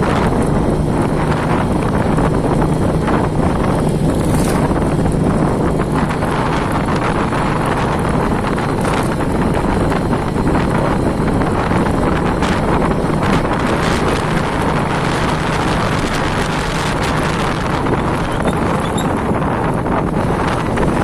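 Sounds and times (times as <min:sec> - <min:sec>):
wind noise on microphone: 0:00.0 - 0:21.0.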